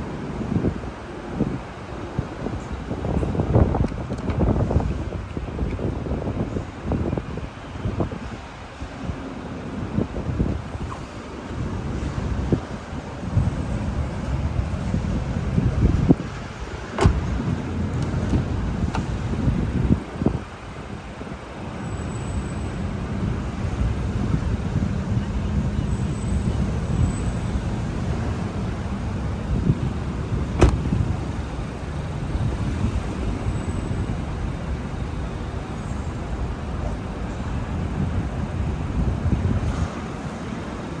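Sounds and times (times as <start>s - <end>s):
road vehicle rumble: 0.0s - 41.0s.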